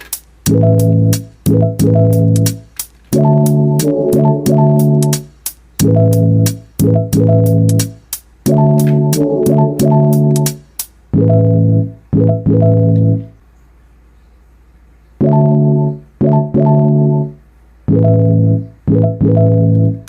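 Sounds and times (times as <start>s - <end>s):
loud chord stabs: 0.4s - 13.3s, 15.2s - 20.0s.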